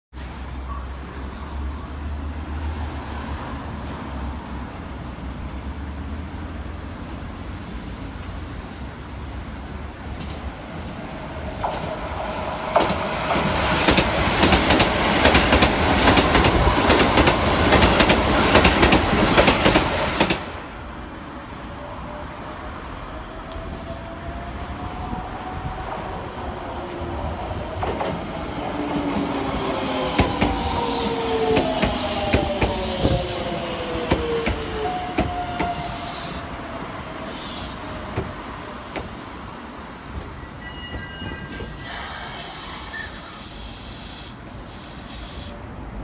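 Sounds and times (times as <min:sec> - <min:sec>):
faint rising train whine: 0:10.8 - 0:46.0
train wheels clattering over rail joints: 0:11.6 - 0:20.6.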